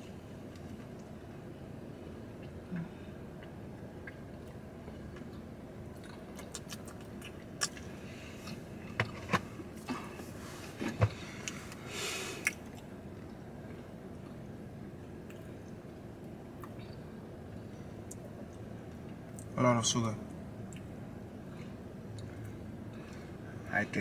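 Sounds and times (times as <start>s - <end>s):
low hum inside car: 0.0s - 24.0s
people chewing cookies: 2.3s - 15.8s, 20.6s - 23.5s
lip smacks and mouth clicks: 6.0s - 7.9s.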